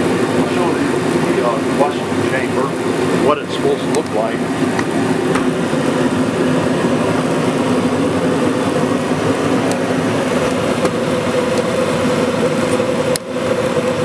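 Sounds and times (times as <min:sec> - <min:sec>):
forced-air heater running: 0:00.0 - 0:14.0
heater click: 0:03.8 - 0:05.5, 0:09.6 - 0:11.8, 0:12.4 - 0:13.3.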